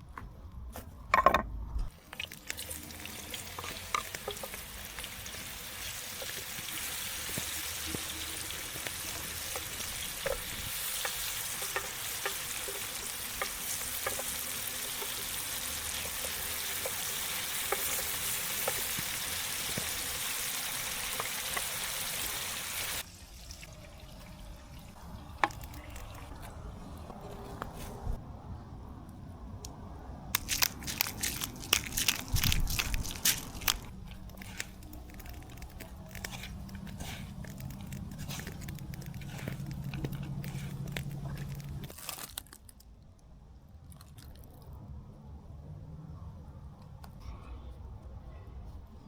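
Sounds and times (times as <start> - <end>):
food sizzling in hot oil: 2.2 - 23.8.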